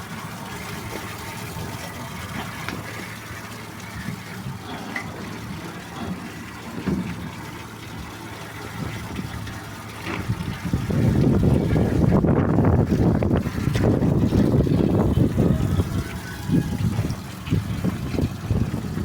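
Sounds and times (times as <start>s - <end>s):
water running: 0.0s - 19.0s.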